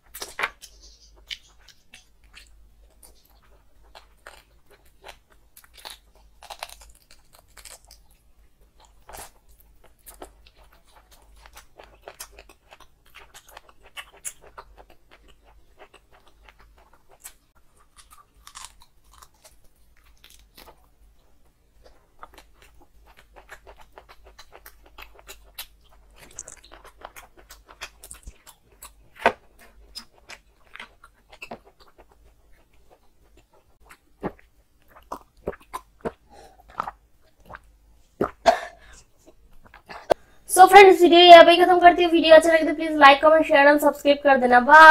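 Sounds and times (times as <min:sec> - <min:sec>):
chewing and crunching bone: 0:00.0 - 0:40.2
wet mouth sounds: 0:23.4 - 0:31.6, 0:33.8 - 0:40.2.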